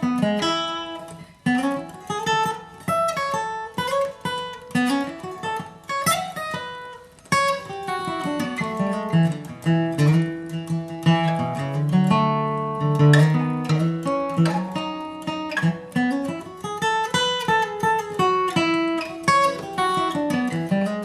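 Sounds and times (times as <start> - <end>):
acoustic guitar bluegrass lead: 0.0 - 21.0.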